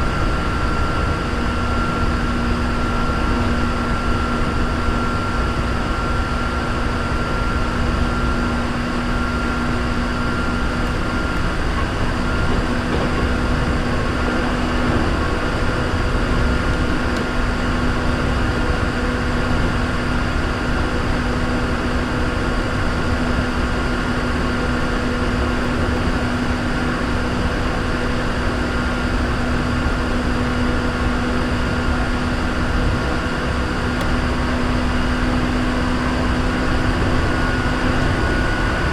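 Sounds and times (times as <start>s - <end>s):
train wheels rumbling on rails: 8.5s - 38.9s.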